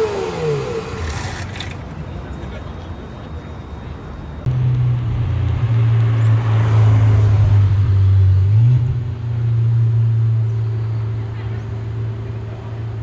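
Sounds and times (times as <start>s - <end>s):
sports car engine drone: 0.0s - 13.0s.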